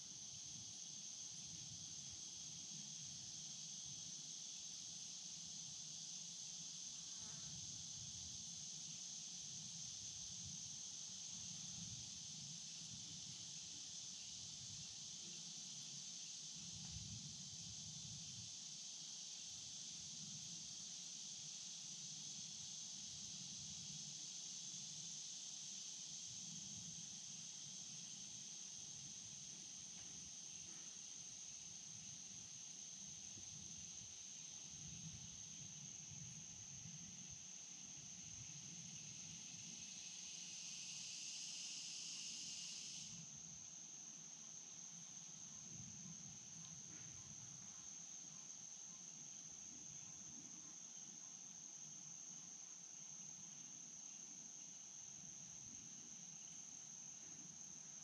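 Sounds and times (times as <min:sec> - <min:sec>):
insects chirping: 0:00.0 - 0:58.0
louder insect buzzing chorus: 0:38.0 - 0:45.6.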